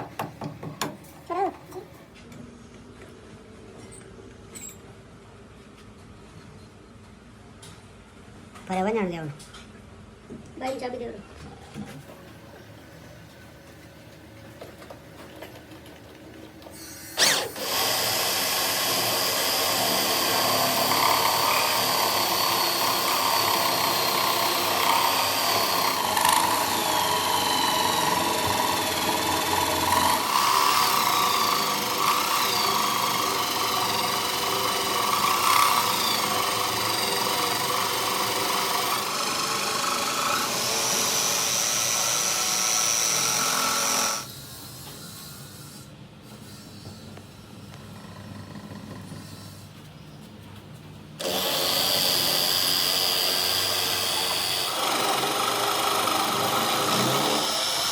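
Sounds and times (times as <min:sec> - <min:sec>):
power tool whining on metal: 0:16.7 - 0:47.1, 0:51.2 - 0:57.9.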